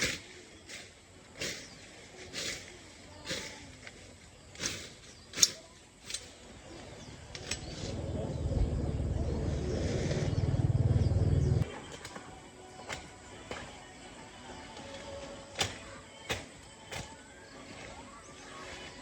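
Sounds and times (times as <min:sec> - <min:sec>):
small engine rumbling: 0:06.9 - 0:11.6.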